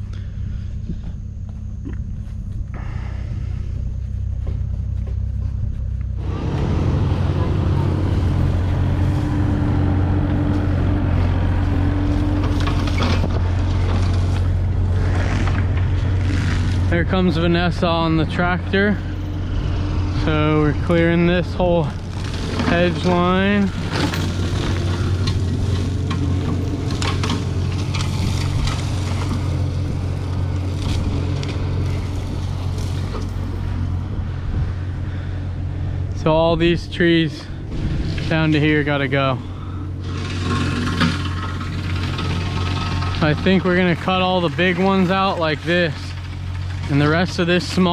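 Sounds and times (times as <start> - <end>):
vehicle engine humming: 0.0 - 47.9
sharp crackles and clicks: 11.4 - 17.0, 21.4 - 33.8
clattering rattle: 21.9 - 29.6, 40.0 - 47.8.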